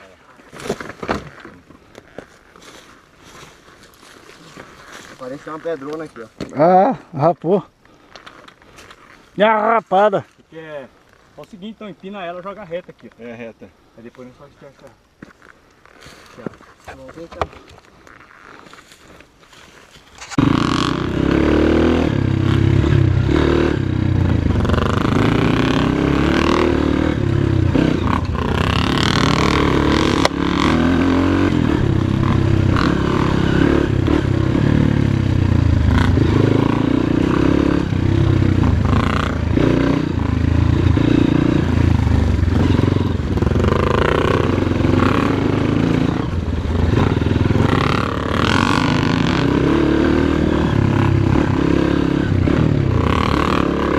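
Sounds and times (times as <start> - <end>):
dirt bike engine revving: 20.2 - 53.9.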